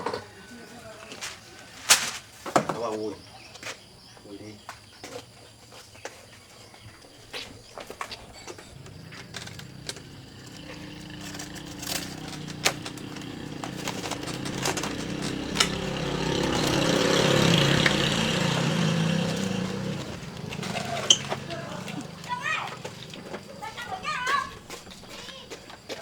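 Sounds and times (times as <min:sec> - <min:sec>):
vehicle engine running: 0:07.2 - 0:25.8.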